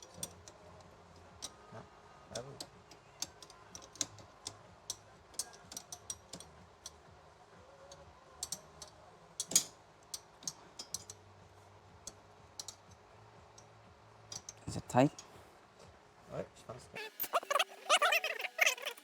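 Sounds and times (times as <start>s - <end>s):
wrench clicking on metal bolt: 0.0s - 0.6s, 2.6s - 7.0s, 8.4s - 11.2s, 12.1s - 12.9s, 14.3s - 14.6s.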